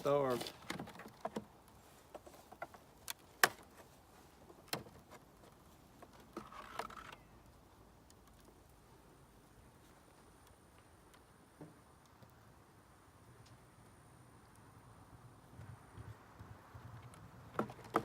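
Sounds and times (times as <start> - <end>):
scraping rustle: 0.0 - 7.3
clicks and knocks from wooden box: 0.4 - 3.8, 17.0 - 18.0.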